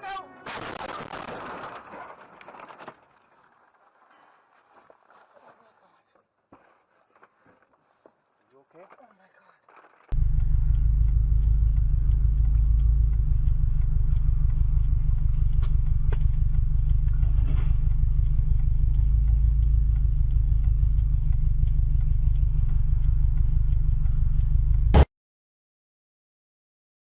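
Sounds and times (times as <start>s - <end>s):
vehicle rumbling: 9.6s - 25.1s.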